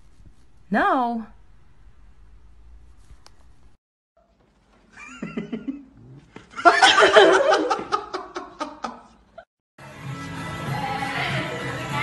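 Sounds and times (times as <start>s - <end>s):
person laughing loudly: 5.0s - 5.9s, 6.5s - 9.2s.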